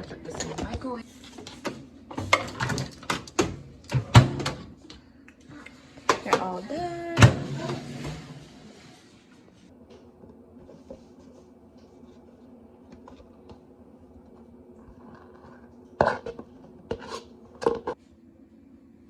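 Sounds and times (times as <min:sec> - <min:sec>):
steady low hum: 0:00.0 - 0:19.0
dishes clicking and scraping: 0:15.1 - 0:18.0.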